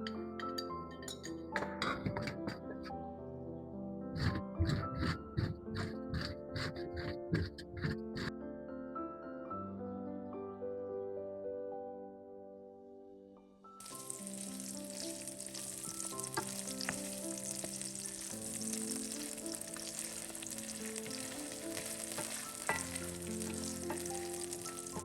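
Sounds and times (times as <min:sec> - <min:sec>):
soft piano music: 0:00.0 - 0:25.0
food sizzling in a pan: 0:13.8 - 0:25.0.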